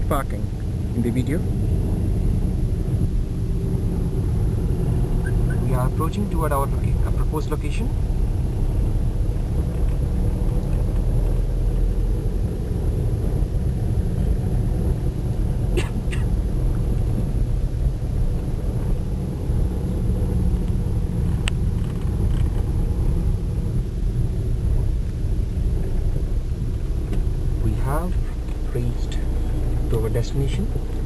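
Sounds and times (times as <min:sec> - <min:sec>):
car driving rumble: 0:00.0 - 0:31.0.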